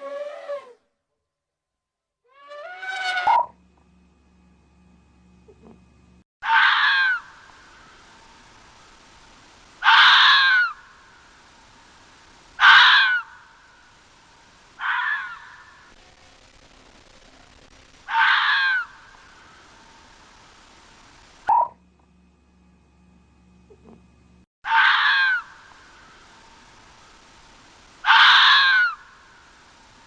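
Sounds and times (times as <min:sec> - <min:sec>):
animal crying out: 0:06.4 - 0:07.4, 0:09.8 - 0:10.8, 0:12.6 - 0:13.4, 0:14.8 - 0:15.9, 0:18.1 - 0:19.1, 0:24.6 - 0:25.6, 0:28.0 - 0:29.1.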